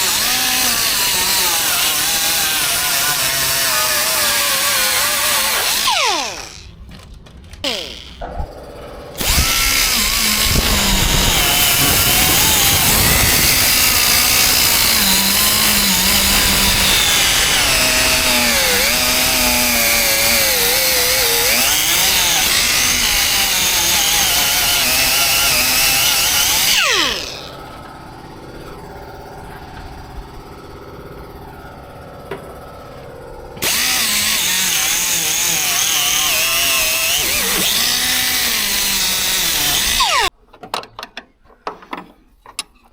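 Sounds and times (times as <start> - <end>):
power sander running: 0.0 - 6.8, 7.6 - 8.2, 9.2 - 27.9, 32.5 - 40.3.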